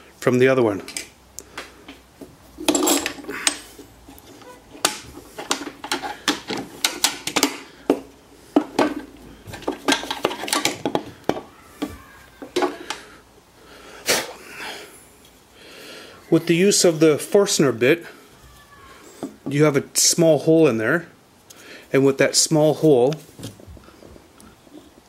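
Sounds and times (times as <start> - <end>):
drill bits and wooden ball clattering: 2.6 - 13.2.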